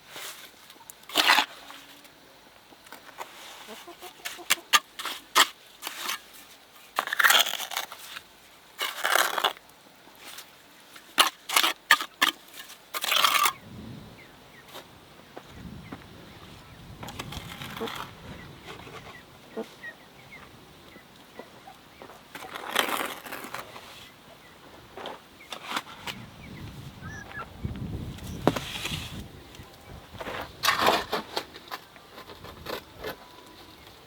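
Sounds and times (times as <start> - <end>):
scraping and rustling: 17.0 - 19.8, 22.3 - 24.2, 28.1 - 29.3, 30.1 - 34.0.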